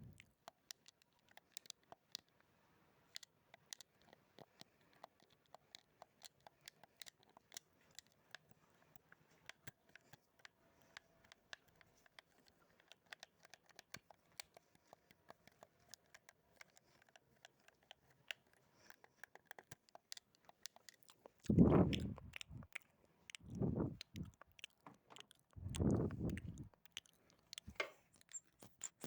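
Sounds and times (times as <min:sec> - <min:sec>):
wet mouth clicks and lip smacks: 0:18.8 - 0:29.0.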